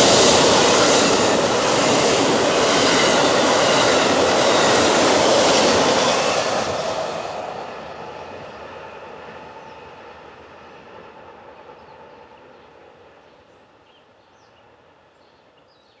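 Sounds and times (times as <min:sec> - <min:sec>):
train wheels rumbling on rails: 0:00.0 - 0:13.6.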